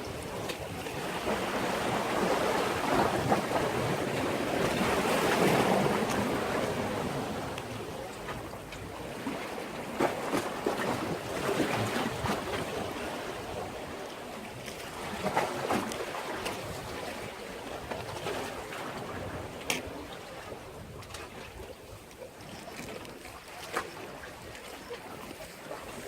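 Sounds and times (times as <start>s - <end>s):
waves splashing against breakwater: 0.0s - 26.0s.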